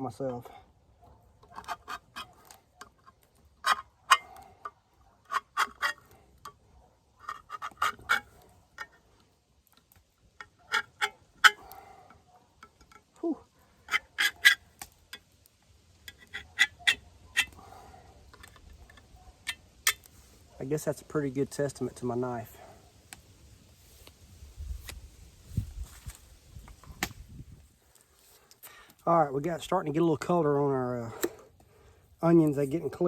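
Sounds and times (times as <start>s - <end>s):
knife scraping metal can lid: 5.2s - 6.1s, 7.2s - 9.0s, 13.9s - 14.6s.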